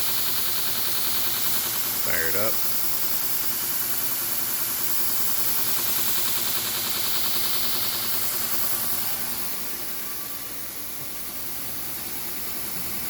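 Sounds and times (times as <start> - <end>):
belt grinder motor humming: 5.0 - 10.7.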